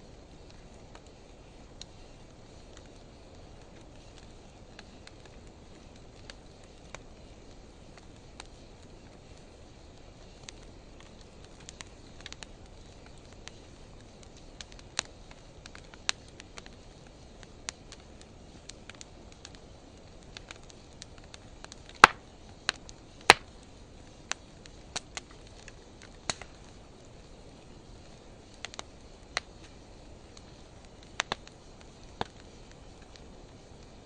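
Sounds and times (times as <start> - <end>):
faint steady hiss: 0.0 - 34.0
wood fire crackling: 0.0 - 34.0
loud fire pops: 4.0 - 27.1.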